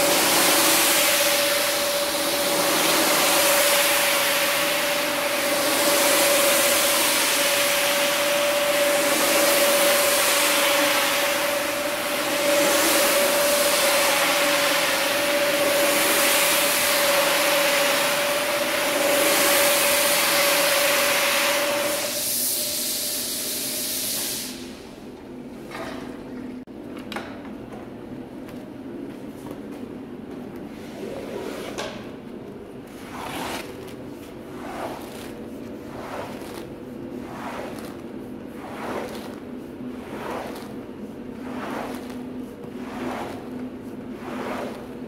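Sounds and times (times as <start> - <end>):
rug-cleaning machine whine: 0.0 - 24.6, 34.4 - 45.0.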